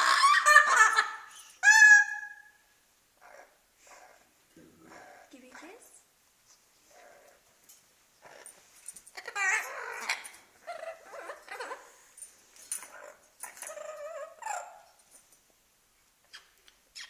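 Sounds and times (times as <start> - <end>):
parrot chattering and whining: 0.0 - 2.6, 3.2 - 6.0, 8.2 - 15.1, 16.2 - 17.0.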